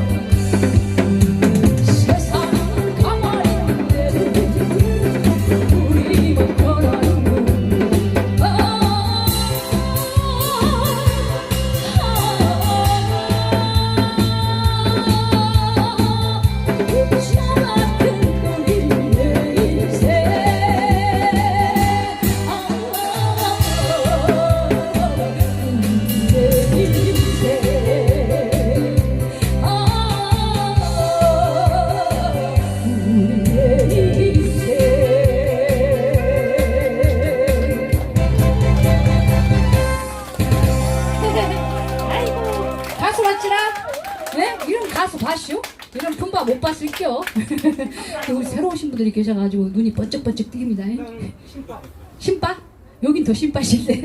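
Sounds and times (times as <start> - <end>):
backing track with drum and bass: 0.0 - 49.3
person singing with vibrato: 1.9 - 38.0.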